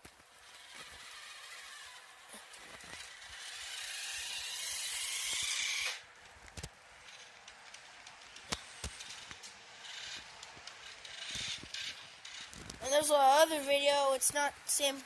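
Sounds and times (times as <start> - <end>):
toy car motor whirring: 0.2 - 6.0, 7.0 - 7.4, 8.6 - 13.5.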